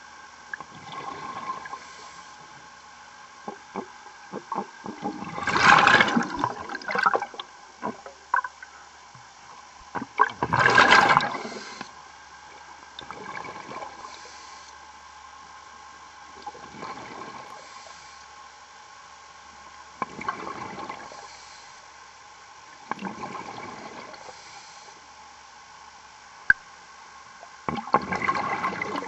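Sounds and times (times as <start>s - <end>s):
underwater bubbling and gushing: 0.0s - 14.7s, 16.0s - 18.2s, 19.6s - 25.0s, 27.2s - 29.0s
faint steady hum: 0.0s - 29.0s.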